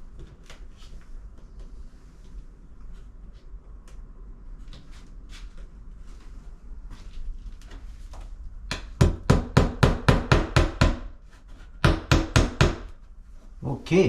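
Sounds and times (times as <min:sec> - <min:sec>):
hammer tapping a nail into wood: 0:08.7 - 0:11.1, 0:11.8 - 0:12.9.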